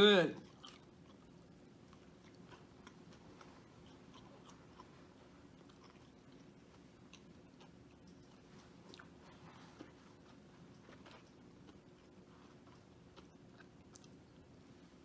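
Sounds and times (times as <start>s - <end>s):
low room hum: 0.0s - 15.0s
person chewing: 0.4s - 14.7s.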